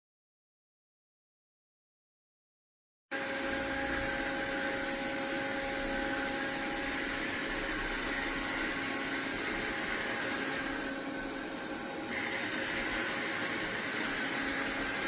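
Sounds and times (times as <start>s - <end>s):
robot vacuum running: 3.2s - 15.0s.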